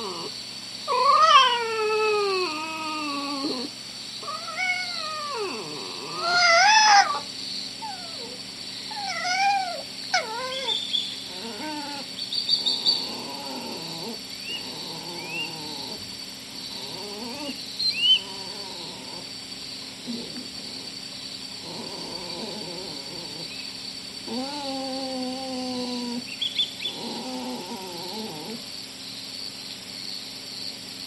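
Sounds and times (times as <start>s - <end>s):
animal mewing calls: 0.9s - 16.0s.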